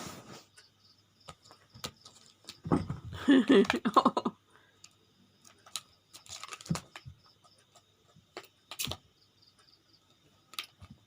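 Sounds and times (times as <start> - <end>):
cat tapping and rustling: 1.2 - 4.2, 5.4 - 9.0.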